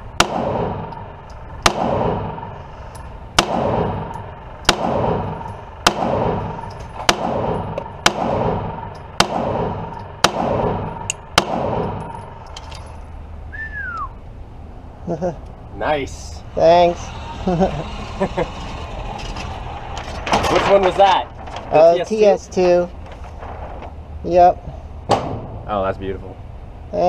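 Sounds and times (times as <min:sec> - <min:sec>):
pistol shots with ringing tail: 0:00.2 - 0:02.6, 0:03.4 - 0:12.5.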